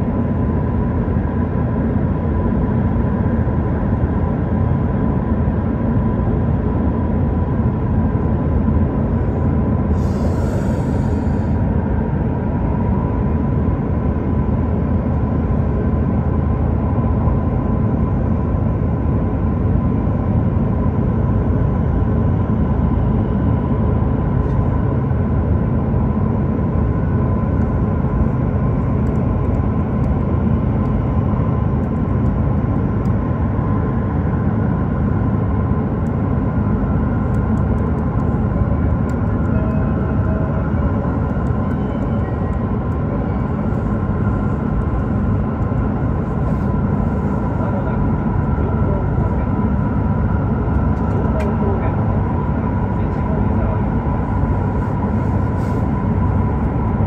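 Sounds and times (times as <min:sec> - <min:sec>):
train rumble from inside cabin: 0:00.0 - 0:57.0
faint steady whine: 0:36.1 - 0:57.0.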